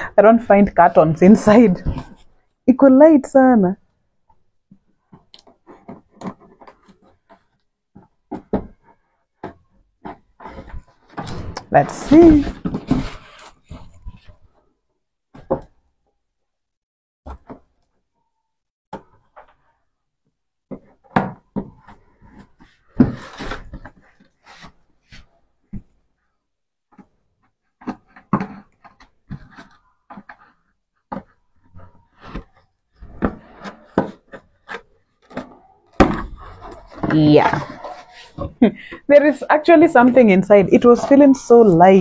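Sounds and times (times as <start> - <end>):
cardboard box rustling and scraping: 9.8 - 14.5.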